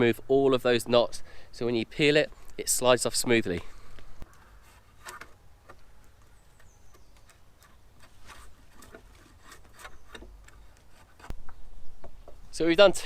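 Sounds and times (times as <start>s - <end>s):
wood clicks: 3.9s - 12.4s
draw knife scraping bark: 4.3s - 11.4s.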